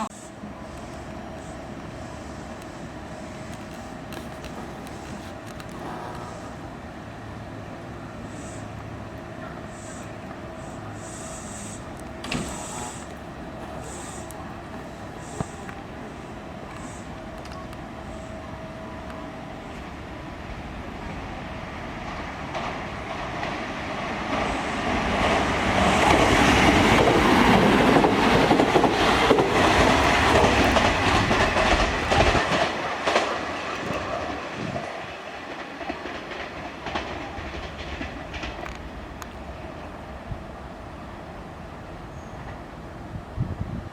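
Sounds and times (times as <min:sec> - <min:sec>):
train wheels clacking over rail joints: 0:10.9 - 0:17.0, 0:22.0 - 0:39.4.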